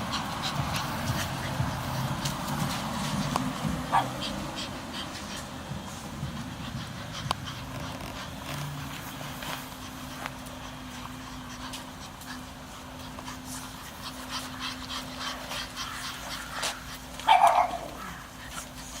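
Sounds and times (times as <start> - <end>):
puppies snuffling and squeaking: 0.0 - 19.0
puppy squealing: 14.2 - 18.8.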